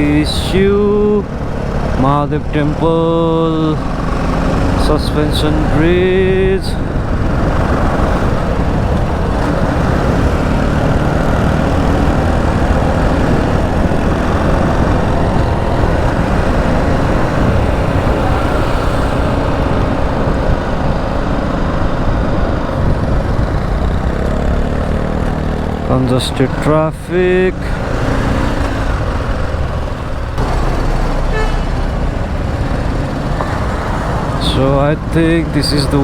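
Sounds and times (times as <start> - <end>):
wind rumbling on microphone: 0.0 - 26.7
motorcycle engine running: 0.0 - 36.0.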